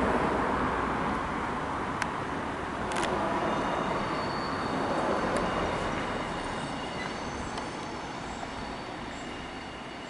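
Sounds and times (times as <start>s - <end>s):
train rumbling past: 0.0s - 10.0s.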